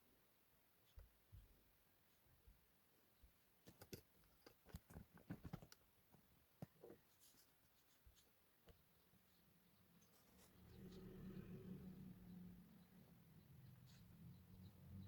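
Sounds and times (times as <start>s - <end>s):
faint clicks and taps: 3.6s - 8.9s.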